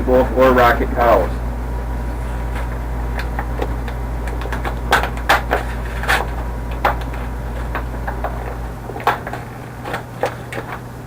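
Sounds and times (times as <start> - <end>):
steady low hum: 0.0 - 11.0
hard objects clicking and tapping: 3.1 - 10.9.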